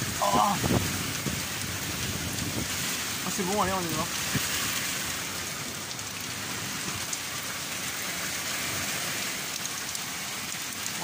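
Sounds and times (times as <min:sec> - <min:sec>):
heavy rain hissing: 0:00.0 - 0:11.0
raindrop ticks: 0:05.8 - 0:07.5, 0:09.5 - 0:11.0.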